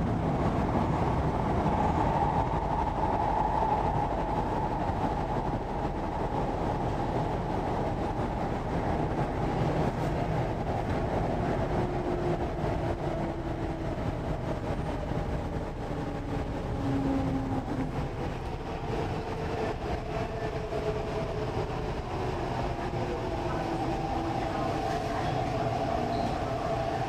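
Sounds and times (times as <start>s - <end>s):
train wheels rumbling: 0.0s - 27.0s
electric train whine: 10.9s - 27.0s.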